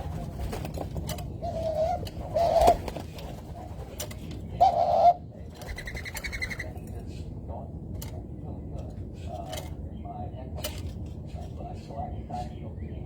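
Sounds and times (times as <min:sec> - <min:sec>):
dove cooing: 0:01.2 - 0:03.7, 0:04.5 - 0:06.8.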